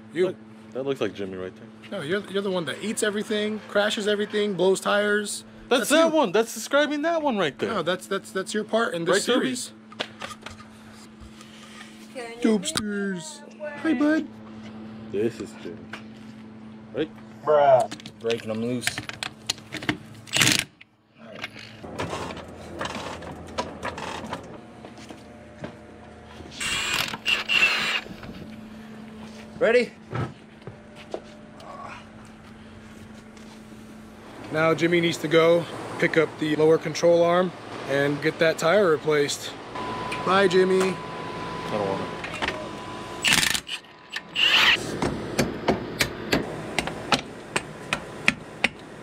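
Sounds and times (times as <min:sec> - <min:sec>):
power tool whirring: 0:21.8 - 0:24.5, 0:26.5 - 0:28.4, 0:42.5 - 0:45.0.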